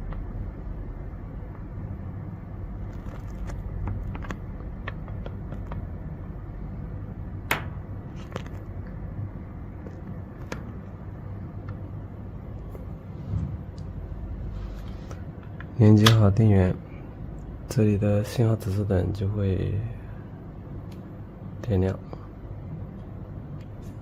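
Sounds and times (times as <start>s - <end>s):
steady low hum: 0.0s - 24.0s
connectors clicking and tapping: 2.9s - 6.3s.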